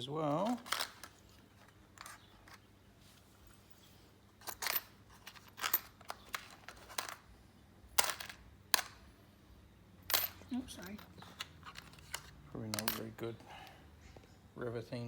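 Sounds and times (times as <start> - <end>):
metal washers clinking: 0.4 - 1.2, 4.4 - 7.3, 8.0 - 9.1, 10.0 - 13.4.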